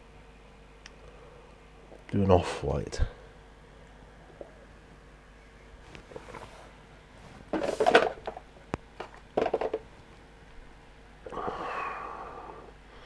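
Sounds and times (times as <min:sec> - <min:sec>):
paint pots clattering: 0:06.1 - 0:10.1.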